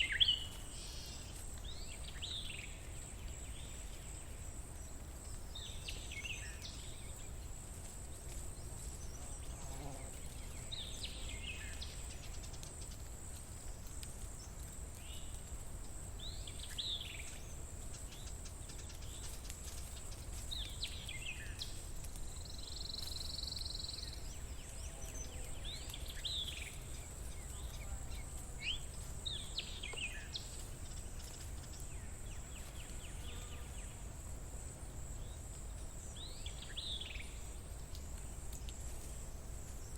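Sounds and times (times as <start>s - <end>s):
high insect drone: 15.0s - 39.9s.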